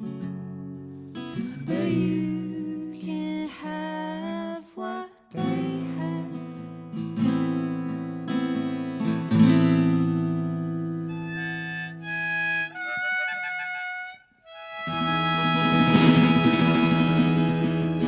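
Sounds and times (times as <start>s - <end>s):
harmonica long notes: 11.1s - 18.0s
strummed acoustic guitar chords: 13.7s - 18.0s.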